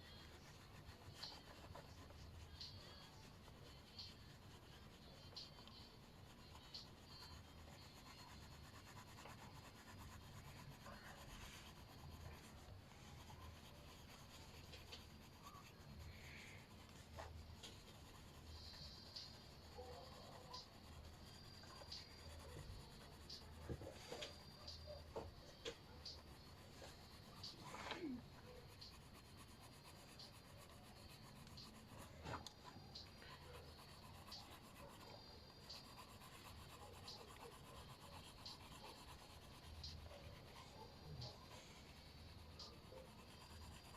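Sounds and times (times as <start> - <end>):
colouring tool scratching on paper: 0.0 - 43.9
sharp ticks: 13.3 - 40.1.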